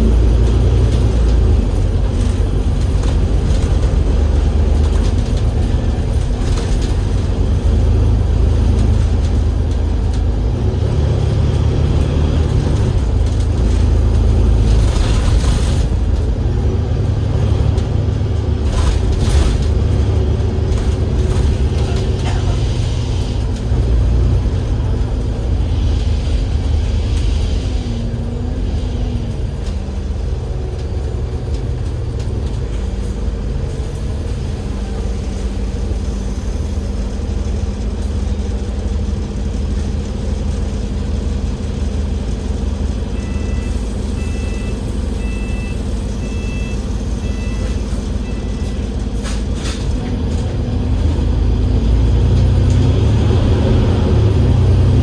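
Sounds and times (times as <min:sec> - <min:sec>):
bus engine drone: 0:00.0 - 0:55.0
short electronic beeps: 0:43.2 - 0:48.8.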